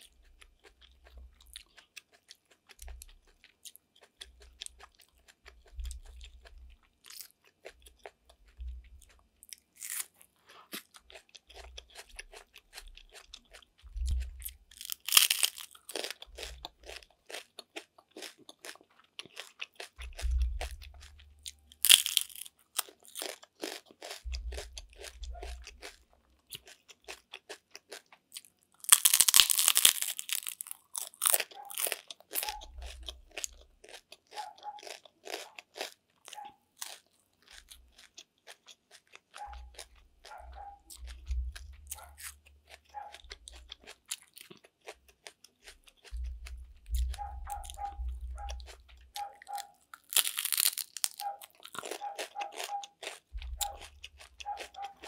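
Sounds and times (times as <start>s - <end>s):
crisp crunchy chewing: 0.0s - 55.0s.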